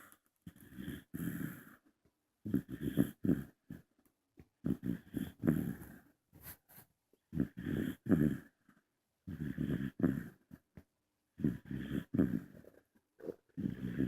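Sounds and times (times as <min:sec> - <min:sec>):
dog snoring: 0:00.0 - 0:01.8, 0:02.4 - 0:03.9, 0:04.6 - 0:06.1, 0:07.3 - 0:10.6, 0:11.4 - 0:14.0.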